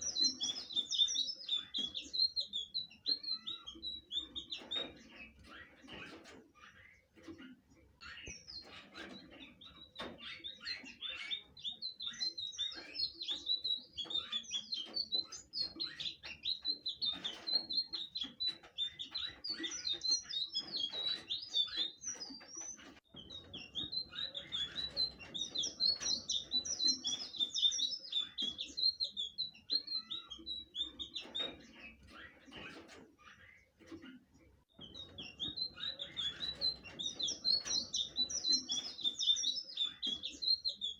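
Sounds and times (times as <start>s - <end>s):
bird singing whistled chirps: 0.0s - 4.9s, 8.2s - 31.6s, 34.8s - 40.9s.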